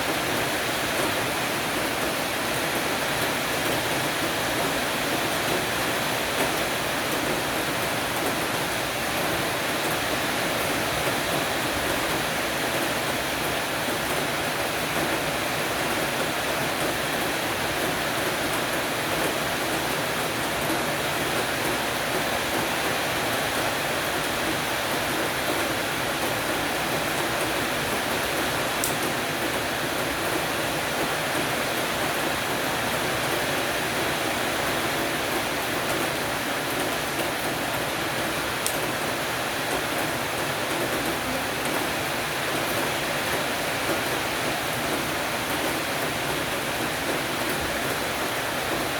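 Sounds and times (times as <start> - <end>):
heavy rain on a roof: 0.0 - 48.9.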